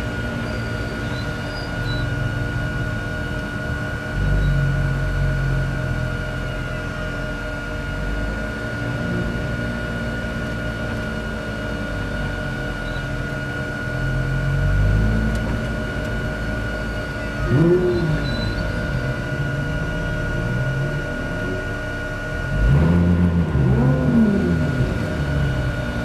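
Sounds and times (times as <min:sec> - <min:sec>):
race car engine at low revs: 0:00.0 - 0:26.0
steady high whine: 0:00.0 - 0:26.0.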